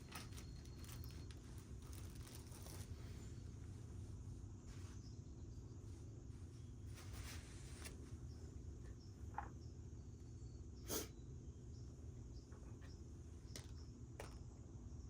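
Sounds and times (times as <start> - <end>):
rustle or scrape: 0.0 - 3.4, 6.8 - 8.0.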